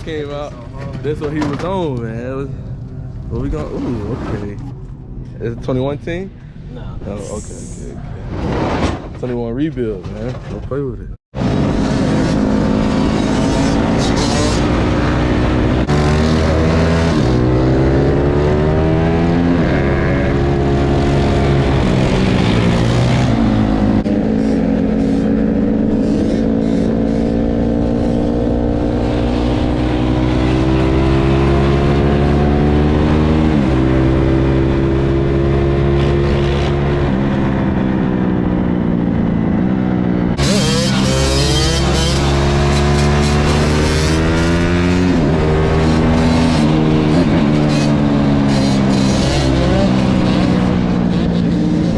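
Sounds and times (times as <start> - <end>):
dirt bike engine revving: 11.5 - 38.5, 39.1 - 51.9.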